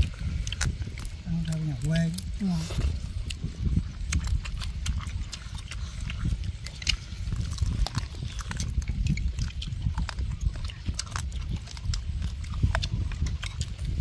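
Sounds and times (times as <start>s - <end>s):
low rumble: 0.0s - 14.0s
person chewing and lip-smacking: 0.0s - 14.0s.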